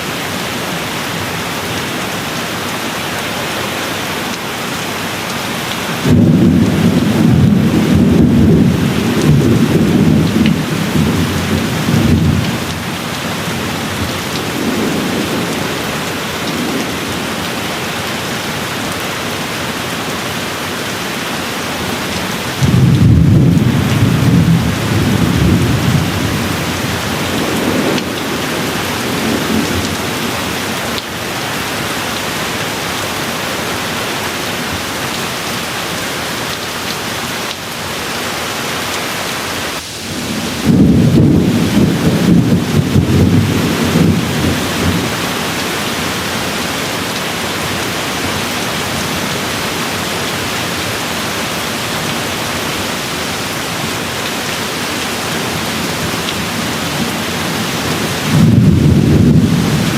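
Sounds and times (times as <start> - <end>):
heavy rain: 0.0 - 59.9
thunder rumbling: 6.0 - 17.8, 22.5 - 31.0, 39.7 - 49.6, 51.8 - 59.9.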